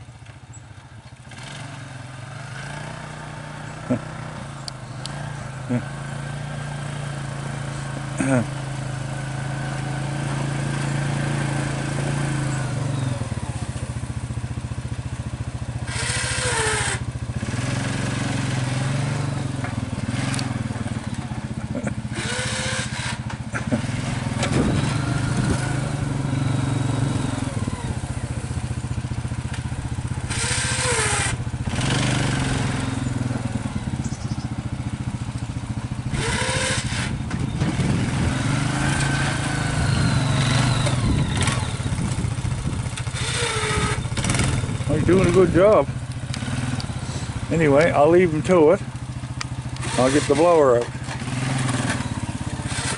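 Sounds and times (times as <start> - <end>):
small gasoline engine running: 0.0 - 52.9.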